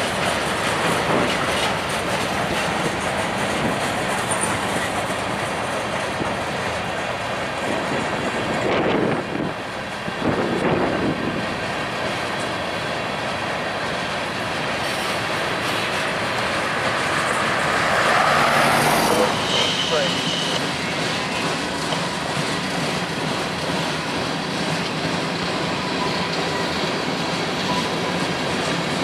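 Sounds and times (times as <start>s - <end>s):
freight train rumbling past: 0.0s - 29.0s.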